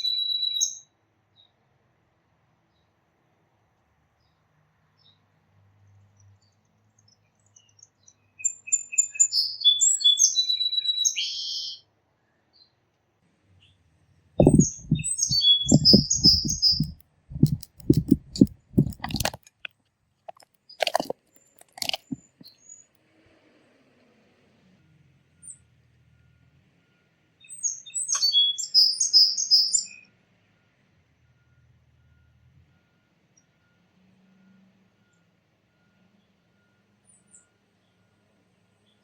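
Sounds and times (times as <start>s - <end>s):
low rapid crunching knocks: 14.4s - 19.4s
songbirds chirping and singing: 14.4s - 19.4s
sharp clicks: 14.4s - 19.7s, 20.3s - 22.5s.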